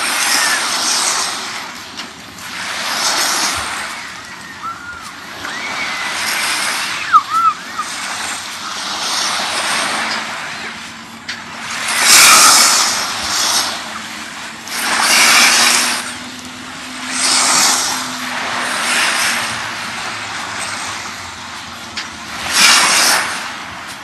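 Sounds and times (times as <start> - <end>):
sea waves washing onto beach: 0.0 - 24.0.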